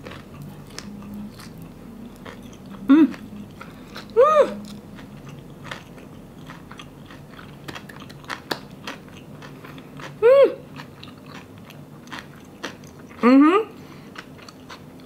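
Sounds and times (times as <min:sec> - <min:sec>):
person chewing: 0:00.0 - 0:13.2, 0:13.8 - 0:15.0
person humming with full mouth: 0:02.8 - 0:03.4, 0:04.1 - 0:04.8.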